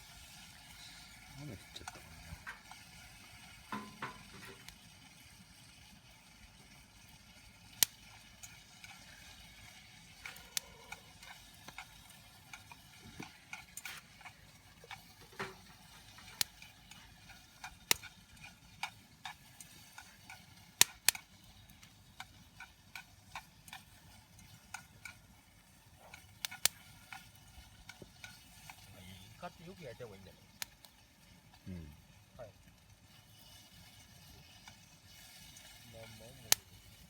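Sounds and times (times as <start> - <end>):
wood fire crackling and popping: 0.0 - 37.0.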